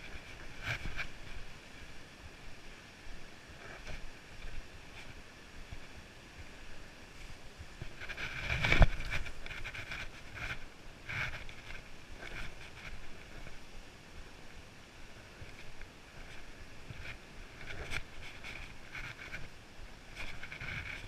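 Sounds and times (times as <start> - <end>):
wind noise on microphone: 0.0 - 21.0.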